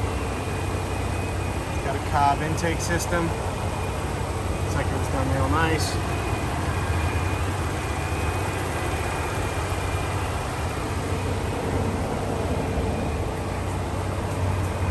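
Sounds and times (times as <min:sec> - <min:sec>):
truck engine idling: 0:00.0 - 0:14.9.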